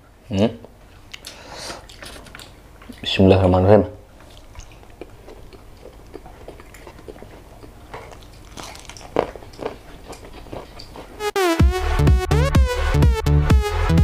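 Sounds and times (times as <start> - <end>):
person chewing food: 1.1 - 3.0, 4.1 - 11.2
wet mouth clicks: 4.2 - 11.1.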